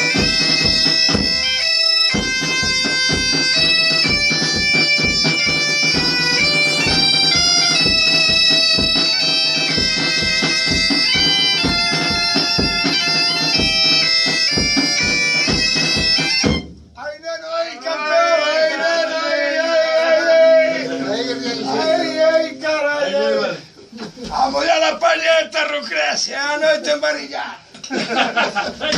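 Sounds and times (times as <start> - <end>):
bagpipe playing a tune: 0.0 - 16.7, 20.7 - 22.8
drum steady beat: 0.0 - 17.0, 20.2 - 23.0.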